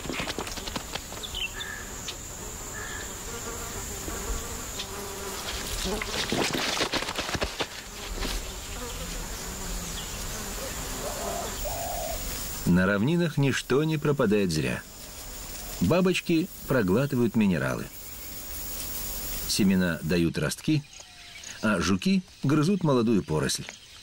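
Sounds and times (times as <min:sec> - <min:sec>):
insects buzzing: 0:00.0 - 0:24.0.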